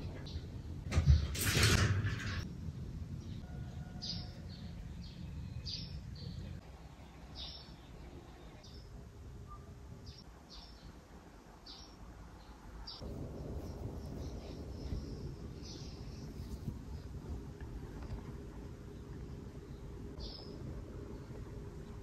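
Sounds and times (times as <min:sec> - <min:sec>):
small birds chirping: 0:03.2 - 0:11.0, 0:11.6 - 0:17.1, 0:18.9 - 0:20.6.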